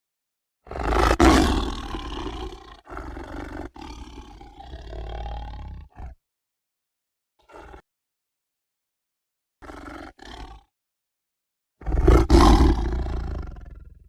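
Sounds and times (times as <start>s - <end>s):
tiger roaring: 0.6s - 6.2s, 7.4s - 7.8s, 9.6s - 10.7s, 11.8s - 14.0s.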